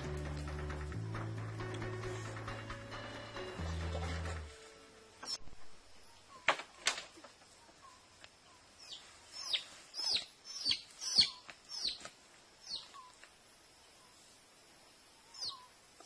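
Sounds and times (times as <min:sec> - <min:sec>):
bird sharp falling calls: 0:08.9 - 0:12.0.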